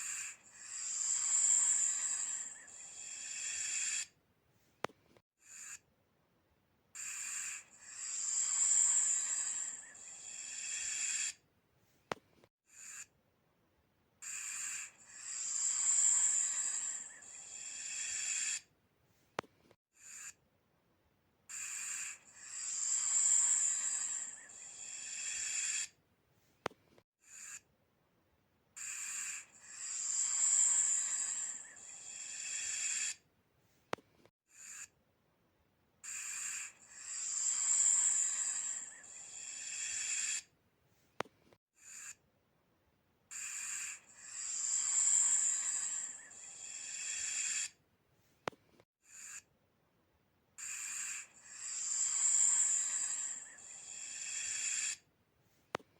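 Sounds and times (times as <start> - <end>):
snake hissing: 0.0 - 4.1, 7.0 - 11.4, 14.2 - 18.7, 21.6 - 26.0, 28.8 - 33.2, 36.0 - 40.5, 43.4 - 47.8, 50.6 - 55.0.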